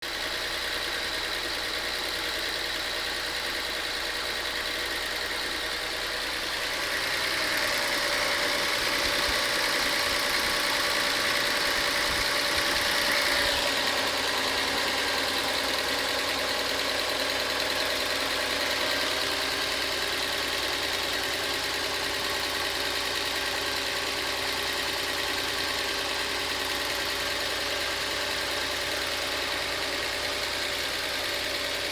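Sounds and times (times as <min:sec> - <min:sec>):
car engine idling: 0:00.0 - 0:31.9
engine clicking noise: 0:00.1 - 0:31.9.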